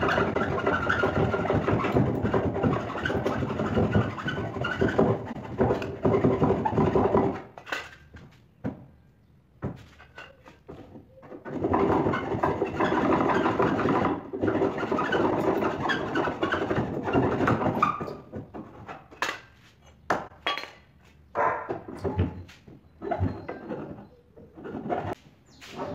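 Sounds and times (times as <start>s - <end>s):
hand saw sawing board: 0.0s - 7.6s, 10.3s - 19.2s, 23.0s - 25.2s
wood knocking and clattering: 0.0s - 9.0s, 9.6s - 24.9s.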